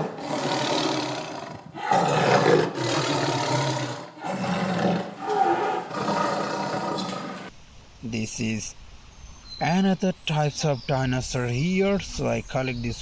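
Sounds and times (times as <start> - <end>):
dinosaur roars: 0.0 - 7.5.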